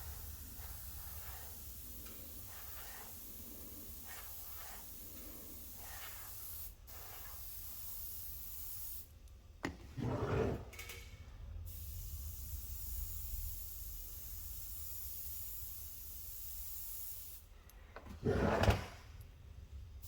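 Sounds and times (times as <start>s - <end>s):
airbrush hissing: 0.0s - 9.1s, 11.7s - 17.5s.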